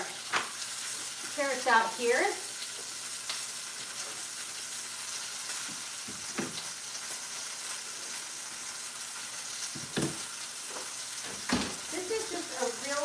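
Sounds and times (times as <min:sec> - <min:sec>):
fish sizzling in a pan: 0:00.0 - 0:13.0
cookware knocks: 0:09.8 - 0:10.2, 0:11.5 - 0:11.8.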